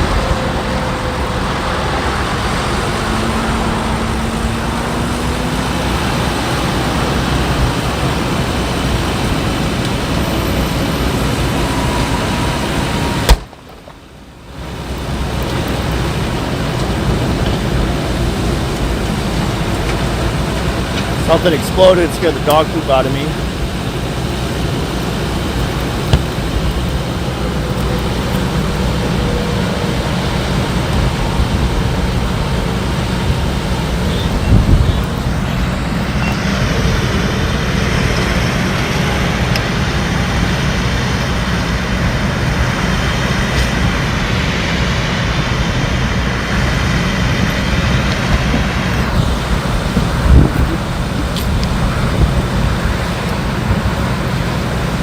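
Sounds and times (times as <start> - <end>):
vehicle passing: 0.0 - 13.4
highway traffic rumble: 0.0 - 55.0.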